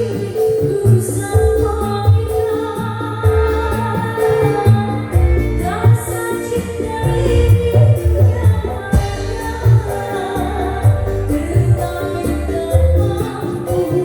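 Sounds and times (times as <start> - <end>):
music with bass and melody: 0.0 - 14.0
percussion hits: 3.3 - 14.0.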